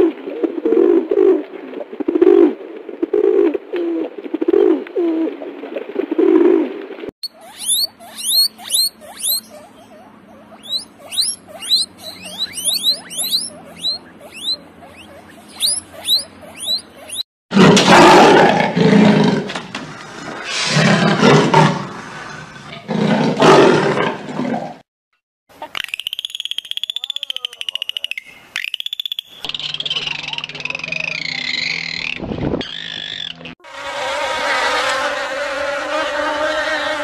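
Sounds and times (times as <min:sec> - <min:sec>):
dolphin whistle: 0:07.2 - 0:17.2, 0:25.9 - 0:33.4
guinea pig squeaking: 0:07.2 - 0:17.3, 0:25.6 - 0:33.4
dolphin clicks: 0:07.3 - 0:17.2, 0:25.6 - 0:32.1
deep animal roars: 0:17.5 - 0:24.8.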